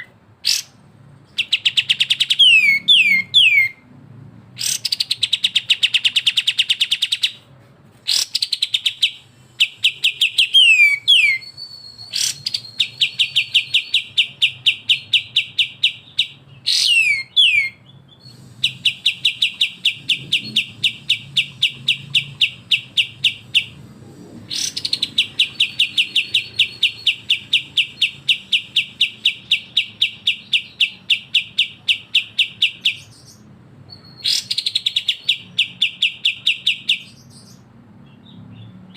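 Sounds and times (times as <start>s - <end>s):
bird downward-slurred whistles: 1.4s - 3.8s, 8.1s - 23.8s, 24.5s - 37.1s.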